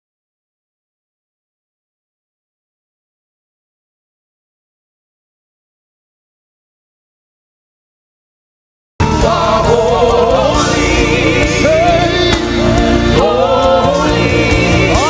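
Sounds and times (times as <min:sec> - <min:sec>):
gospel band and choir singing: 0:09.0 - 0:15.0.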